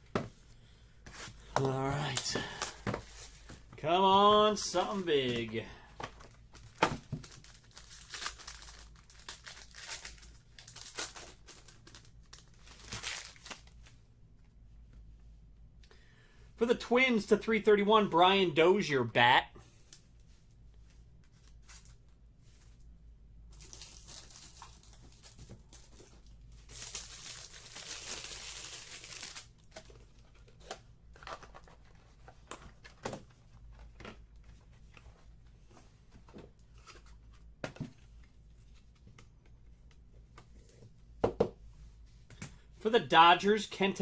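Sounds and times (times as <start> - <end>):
packaging rustling and tearing: 6.2 - 13.9, 23.5 - 32.9.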